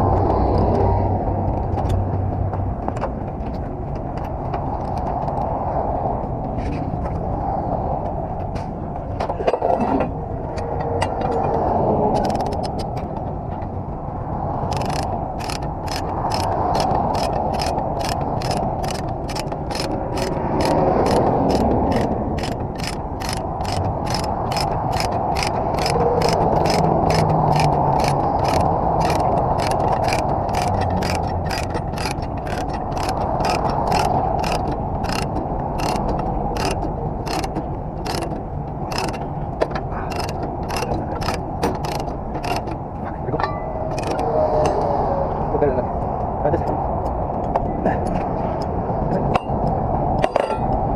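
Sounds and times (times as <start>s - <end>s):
steady background noise: 0.0s - 50.9s
ratchet strap pawl clicking: 12.1s - 12.9s, 14.6s - 39.3s, 40.0s - 42.8s, 43.9s - 44.2s.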